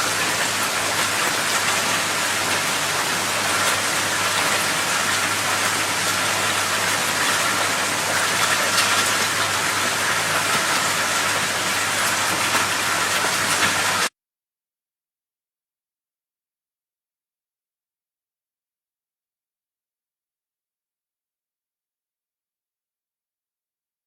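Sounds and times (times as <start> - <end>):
rushing water: 0.0 - 14.1.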